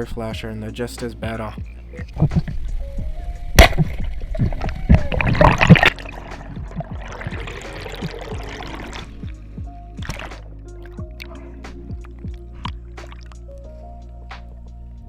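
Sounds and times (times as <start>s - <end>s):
water splashing and gurgling: 2.0s - 13.4s.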